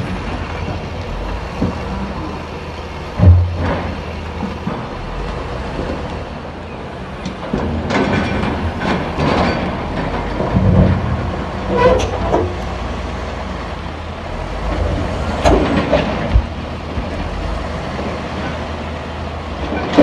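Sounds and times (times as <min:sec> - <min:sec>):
diesel machinery rumbling: 0:00.0 - 0:20.0
metal clanks and knocks: 0:03.2 - 0:05.1, 0:07.2 - 0:12.6, 0:15.4 - 0:17.2.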